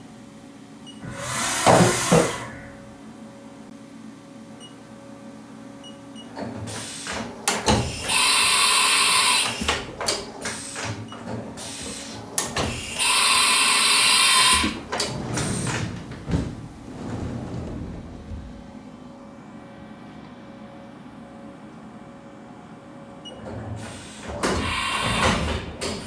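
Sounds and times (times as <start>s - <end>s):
machine low hum: 0.0s - 10.4s, 12.2s - 26.0s
machine clunks and clicks: 6.2s - 8.3s, 9.4s - 13.2s, 14.4s - 18.7s, 23.3s - 26.0s.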